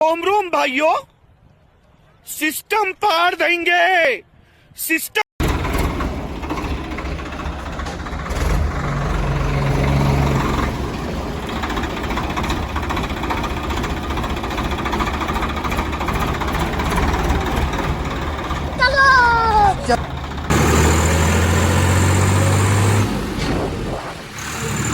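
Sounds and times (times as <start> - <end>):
tractor diesel engine idling: 5.4 - 23.4.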